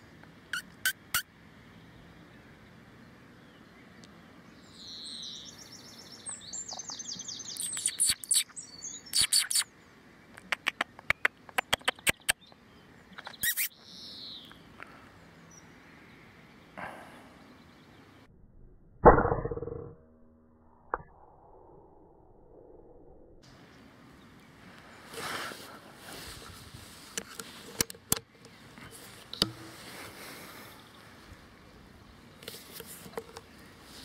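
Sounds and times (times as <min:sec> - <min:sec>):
trilled birdsong: 0:00.0 - 0:18.3, 0:23.4 - 0:34.0
sharp chipping bird calls: 0:00.5 - 0:01.3, 0:04.8 - 0:09.7, 0:10.4 - 0:14.6.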